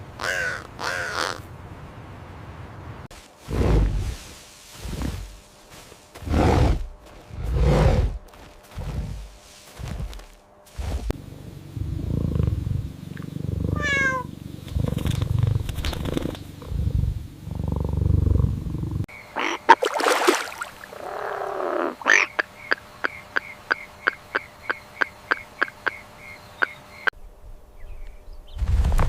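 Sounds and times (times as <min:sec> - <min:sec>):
cat purring: 0:06.2 - 0:19.1
falling meow-like call: 0:13.8 - 0:14.3.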